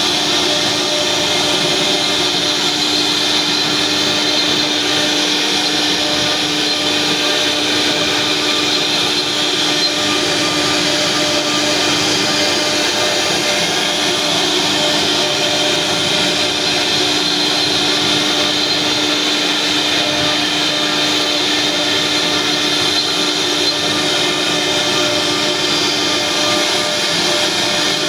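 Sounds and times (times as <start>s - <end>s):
cnc router whine: 0.0s - 28.0s.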